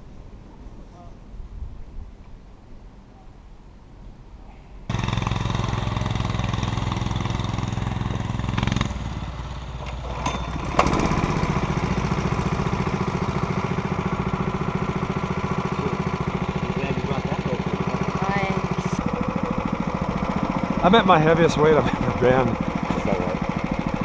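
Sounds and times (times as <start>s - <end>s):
small gasoline engine running: 4.9s - 24.0s.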